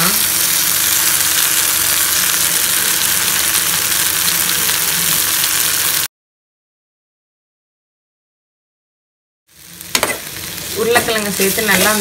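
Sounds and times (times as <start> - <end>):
food sizzling in a frying pan: 0.0 - 6.1, 9.5 - 12.0.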